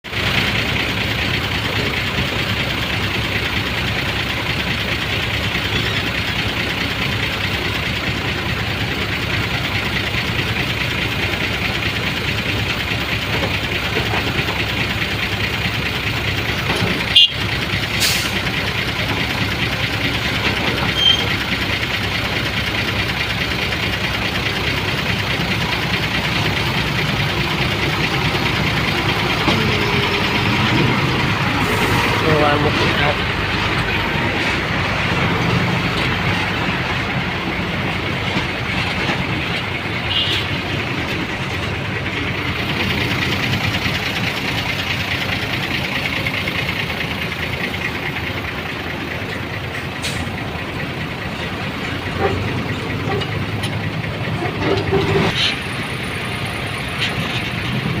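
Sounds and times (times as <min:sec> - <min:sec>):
road traffic noise: 0:00.0 - 0:58.0
vehicle engine running: 0:00.0 - 0:58.0.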